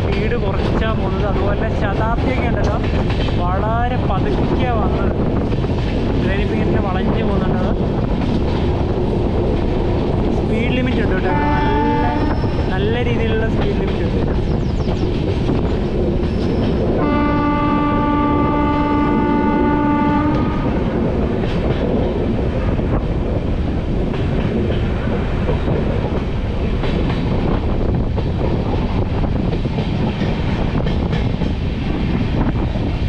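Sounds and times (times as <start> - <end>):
train wheel clicks: 0.0 - 17.1, 17.9 - 33.0
train rumbling on track: 0.0 - 33.0
locomotive horn blast: 11.2 - 12.4, 17.0 - 20.8.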